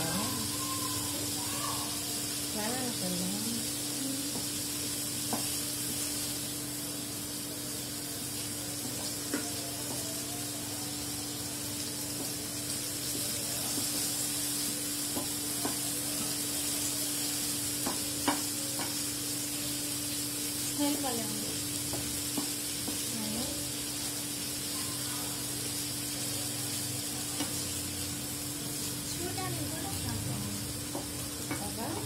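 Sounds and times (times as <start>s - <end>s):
prawns sizzling in a pan: 0.0s - 32.0s
spatula stirring and tapping pan: 4.0s - 6.4s, 8.8s - 10.2s, 12.0s - 19.5s, 20.6s - 24.8s, 26.7s - 27.8s, 30.6s - 32.0s.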